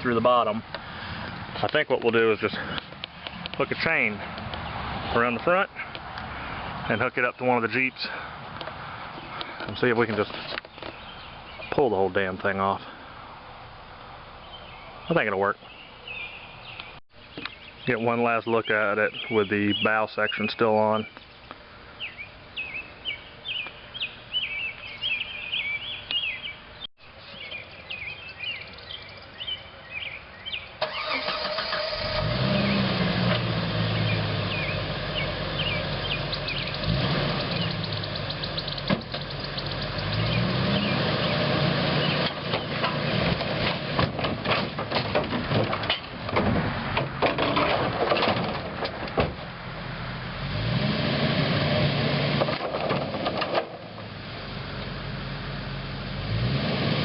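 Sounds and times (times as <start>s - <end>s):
birds chirping: 0.0s - 46.2s
engine revving: 30.8s - 44.0s, 50.3s - 52.7s, 54.6s - 57.0s.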